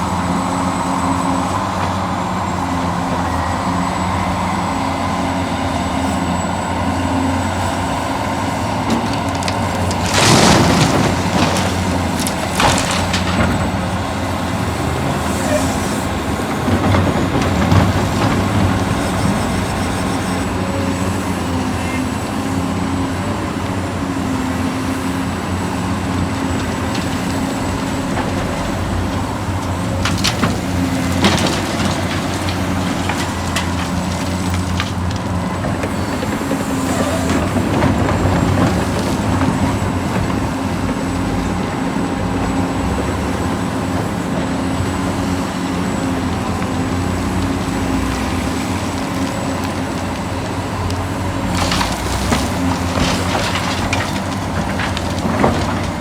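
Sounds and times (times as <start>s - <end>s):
dirt and stones scraping: 7.7s - 20.4s, 25.5s - 41.6s, 44.6s - 56.0s.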